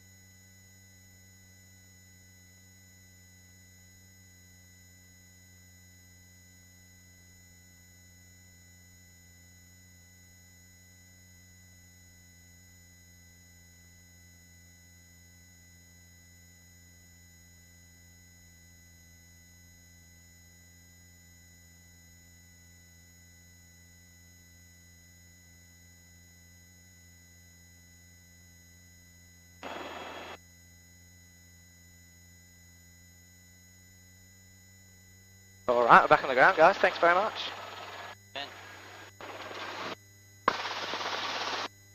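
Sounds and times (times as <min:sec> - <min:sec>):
thin high whine: 0:29.6 - 0:30.4, 0:35.7 - 0:41.7.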